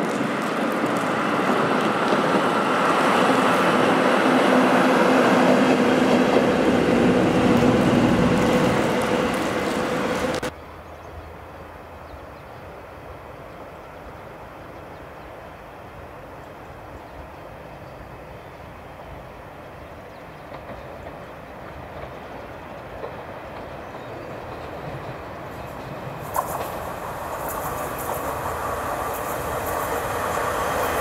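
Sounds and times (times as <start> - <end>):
train rolling rumble: 0.0 - 10.5, 19.1 - 31.0
wheels clattering over rail joints: 20.4 - 31.0.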